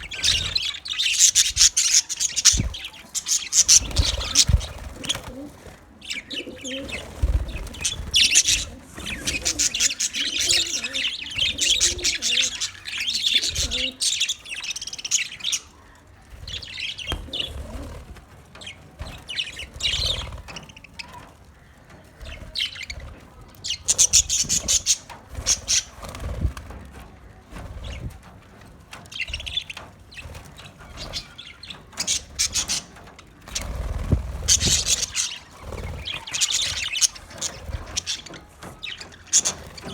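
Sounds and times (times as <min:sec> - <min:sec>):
budgerigars chirping: 0:00.0 - 0:05.4, 0:06.0 - 0:15.9, 0:23.7 - 0:26.4, 0:29.2 - 0:39.9.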